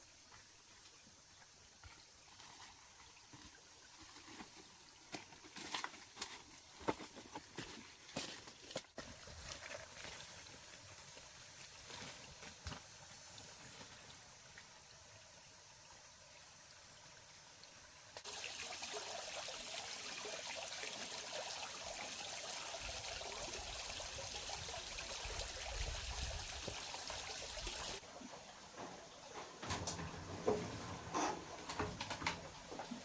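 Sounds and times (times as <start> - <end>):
water trickling and running: 0.0 - 6.3, 9.0 - 33.0.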